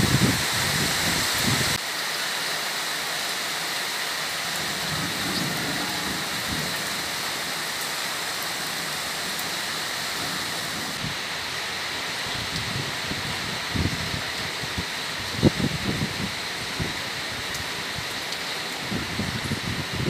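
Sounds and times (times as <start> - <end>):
gusty wind on microphone: 0.0 - 1.8, 12.3 - 18.1, 18.8 - 20.0
heavy rain on water: 0.0 - 20.0.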